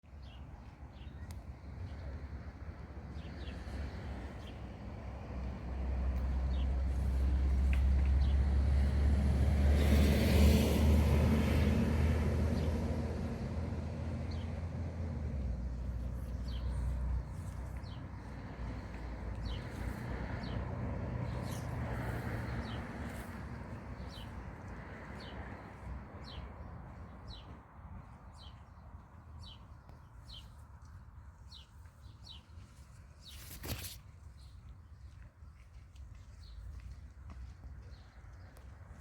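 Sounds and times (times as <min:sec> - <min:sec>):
vehicle passing by: 0:03.4 - 0:26.6.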